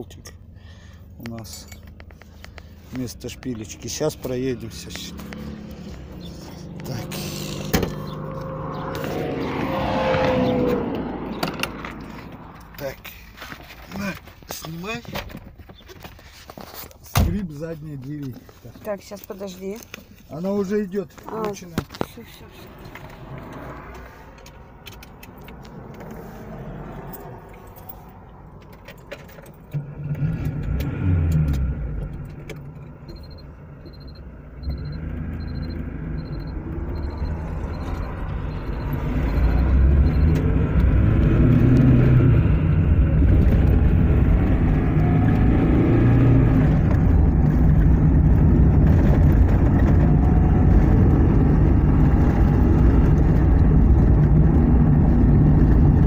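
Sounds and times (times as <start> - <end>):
car engine and road noise: 0.0 - 56.0
short high beeps: 33.1 - 40.4.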